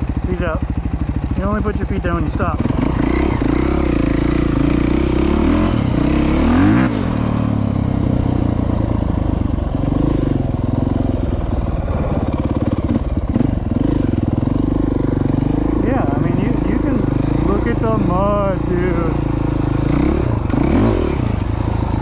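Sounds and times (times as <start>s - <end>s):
dirt bike engine running: 0.0s - 22.0s.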